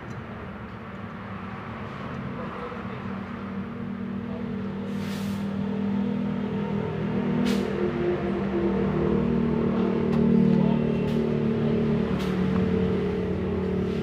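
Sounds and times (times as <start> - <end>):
engine running with low hum: 0.0 - 14.0
short hiss: 4.9 - 5.4.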